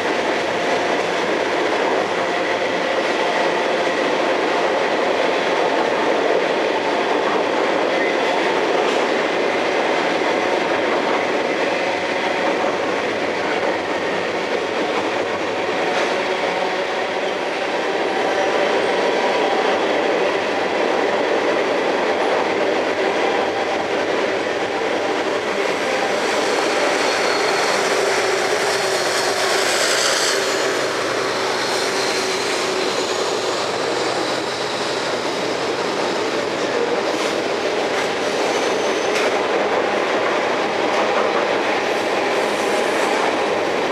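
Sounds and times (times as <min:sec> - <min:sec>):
freight train cars rolling: 0:00.0 - 0:43.9
high wheel squeal: 0:26.1 - 0:35.5.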